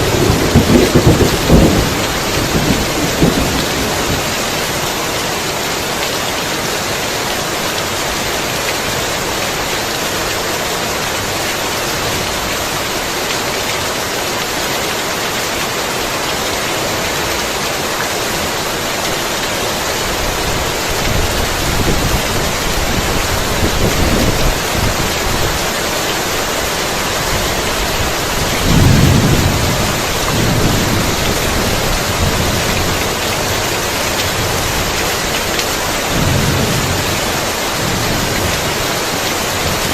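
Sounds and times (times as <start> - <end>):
thunder rumbling: 0.0 - 4.6, 27.3 - 35.4, 36.0 - 39.9
heavy rain falling: 0.0 - 39.9.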